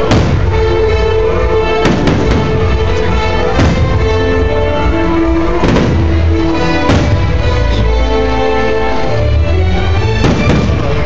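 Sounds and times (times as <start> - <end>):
fireworks booming: 0.0 - 7.9, 10.2 - 11.0
loud music playing: 0.0 - 11.0.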